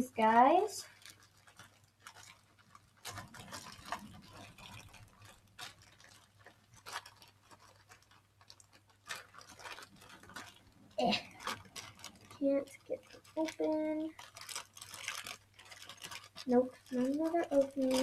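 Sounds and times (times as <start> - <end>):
plastic packaging clicks and rustles: 0.0 - 18.0.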